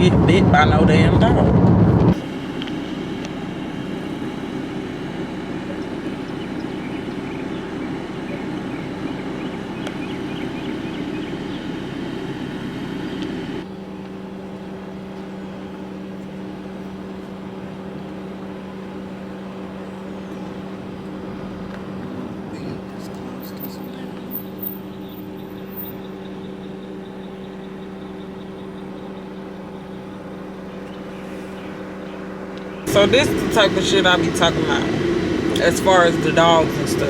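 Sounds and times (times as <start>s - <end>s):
steady tones: 0.0s - 13.6s, 32.3s - 37.0s
car cabin noise: 0.0s - 31.0s, 31.6s - 37.0s.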